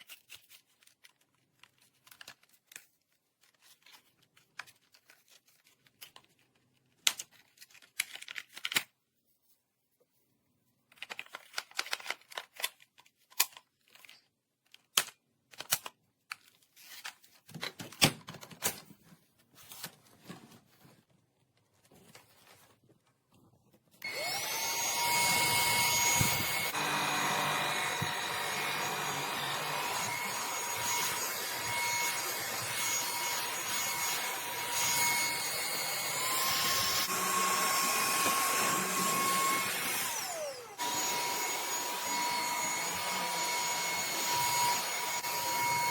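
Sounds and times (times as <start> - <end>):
vacuum motor whine: 24.0 - 45.9.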